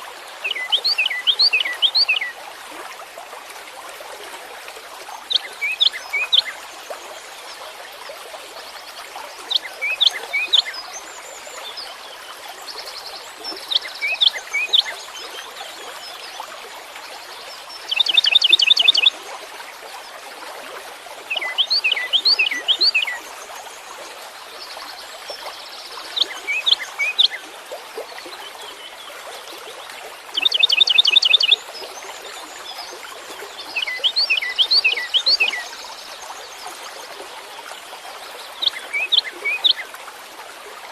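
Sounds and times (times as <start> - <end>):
songbird singing: 0.4 - 2.3, 5.3 - 6.6, 9.4 - 11.8, 17.8 - 19.2, 21.3 - 23.3, 25.6 - 27.4, 30.4 - 36.6, 38.5 - 39.9.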